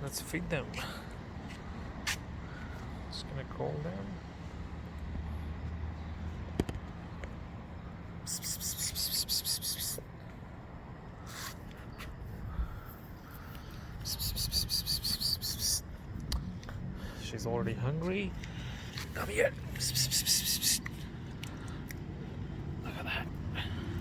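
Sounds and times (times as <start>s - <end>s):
person calling cats with hissing: 8.2s - 10.1s, 11.2s - 11.6s, 13.9s - 15.9s, 19.2s - 21.0s.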